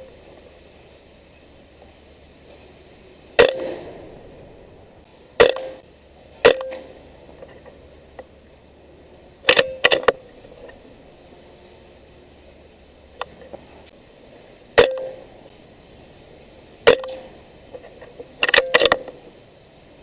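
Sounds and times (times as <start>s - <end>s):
air rifle cracks: 3.4s - 4.2s.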